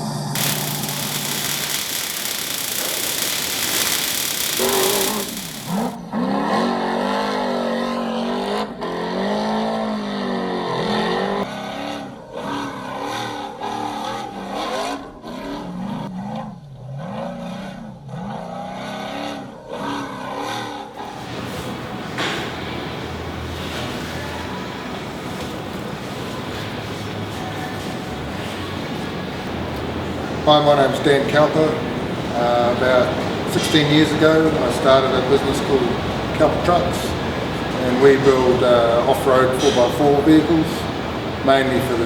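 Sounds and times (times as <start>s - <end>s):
rushing noise: 0.4s - 6.0s.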